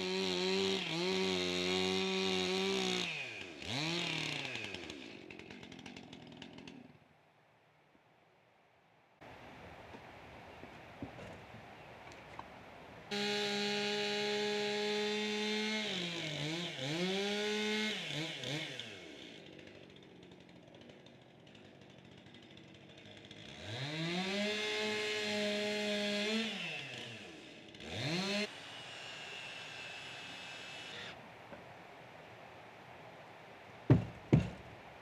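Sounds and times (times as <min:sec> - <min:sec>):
chainsaw cutting wood: 0:00.0 - 0:07.1, 0:13.1 - 0:31.2, 0:33.9 - 0:34.8.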